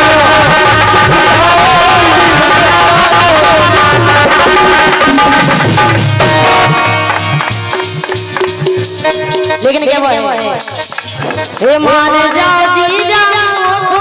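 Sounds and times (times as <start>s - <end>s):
hand drums playing rhythm: 0.0s - 14.0s
high ringing percussion strokes: 4.5s - 12.2s
wavering melody line: 4.5s - 12.4s.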